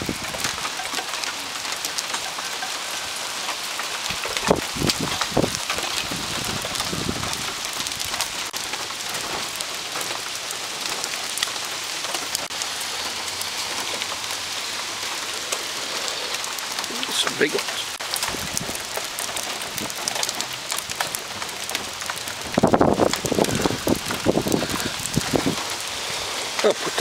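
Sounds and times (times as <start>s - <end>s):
hailstones clicking: 0.0s - 27.0s
rain hissing: 0.0s - 27.0s.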